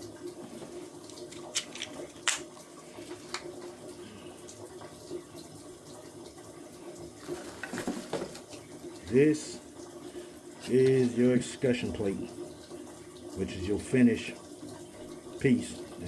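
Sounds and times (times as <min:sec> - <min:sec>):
clicks and taps of small parts: 0:01.1 - 0:02.4.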